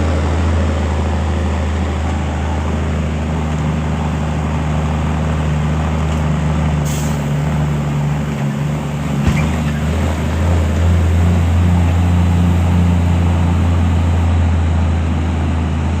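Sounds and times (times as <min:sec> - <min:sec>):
diesel engine droning: 0:00.0 - 0:16.0
short hiss: 0:06.8 - 0:07.4.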